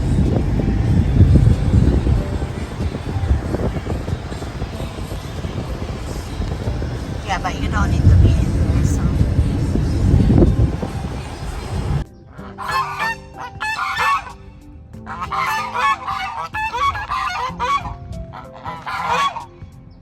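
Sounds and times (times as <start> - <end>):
wind buffeting microphone: 0.0 - 12.3
geese honking: 0.0 - 14.4, 15.1 - 19.6.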